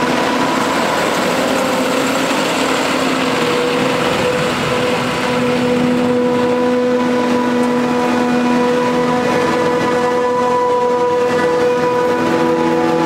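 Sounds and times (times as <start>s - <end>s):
forage harvester machine drone: 0.0s - 13.0s
rushing noise: 0.0s - 13.0s.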